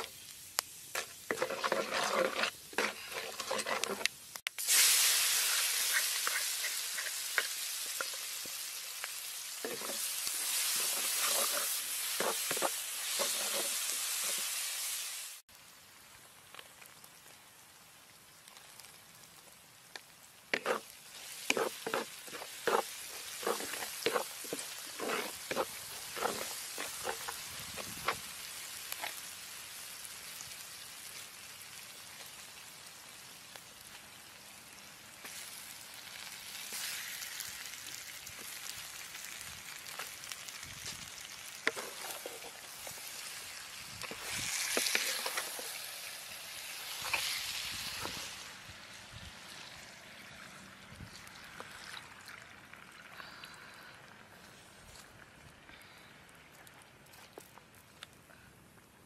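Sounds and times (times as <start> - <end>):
chillies sizzling in hot oil: 0.0 - 58.1
spoon scraping and knocking pan: 0.9 - 4.1, 9.6 - 14.5, 20.5 - 28.2, 41.6 - 42.6.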